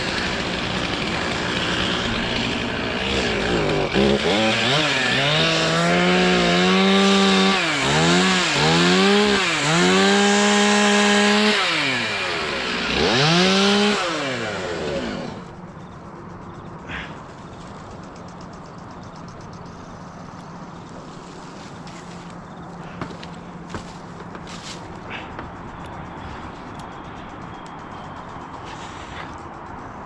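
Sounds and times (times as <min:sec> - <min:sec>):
chainsaw revving: 0:00.0 - 0:15.6.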